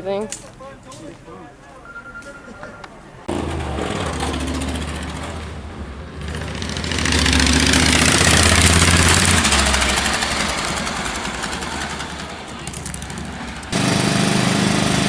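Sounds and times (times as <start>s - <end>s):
vehicle engine running: 6.2s - 15.0s.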